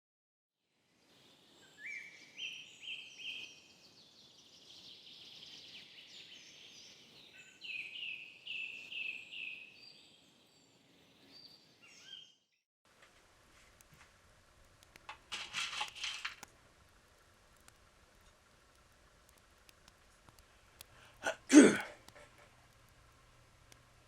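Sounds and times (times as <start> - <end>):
faint background hiss: 0.7 - 12.0, 12.9 - 24.0
bird singing: 1.1 - 12.6.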